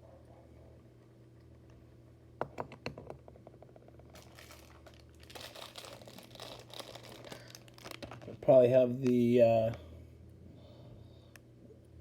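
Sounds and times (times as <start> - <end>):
steady low hum: 0.0 - 12.0
crinkling and rustling: 3.6 - 9.8.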